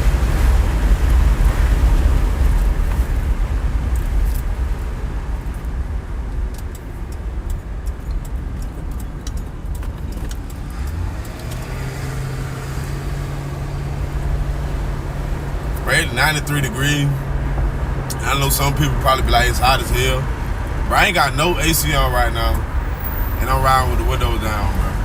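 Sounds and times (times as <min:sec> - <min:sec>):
car engine humming: 0:00.0 - 0:25.0
road and wind rumble: 0:00.0 - 0:25.0
faint clicks: 0:06.5 - 0:11.7.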